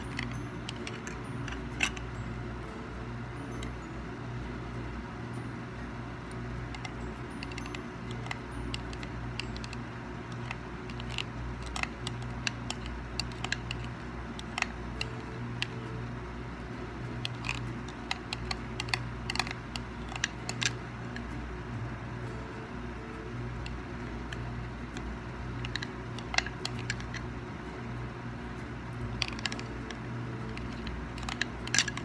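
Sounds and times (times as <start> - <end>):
low electrical hum: 0.0 - 32.0
sharp clicks and ticks: 6.3 - 15.9, 17.1 - 21.4, 23.6 - 27.3, 29.0 - 32.0.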